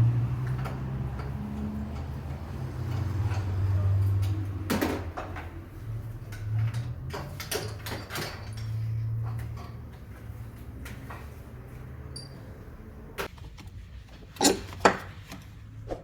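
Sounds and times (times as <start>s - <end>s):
metal tools clinking and knocking: 0.5s - 12.9s.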